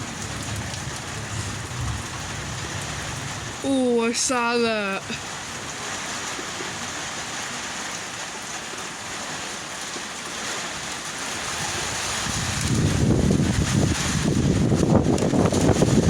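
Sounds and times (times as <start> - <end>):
wind rumbling on microphone: 0.0 - 3.7, 11.2 - 16.0
heavy rain hiss: 0.0 - 16.0.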